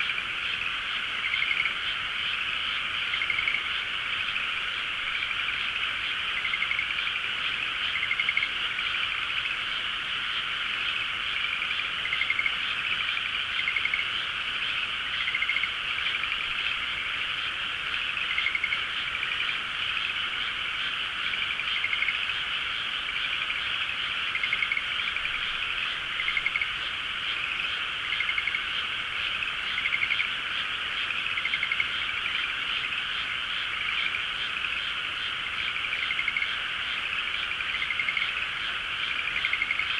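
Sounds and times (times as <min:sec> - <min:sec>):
chorus of frogs calling: 0:00.0 - 0:39.9
nearby frog calls: 0:00.0 - 0:39.9.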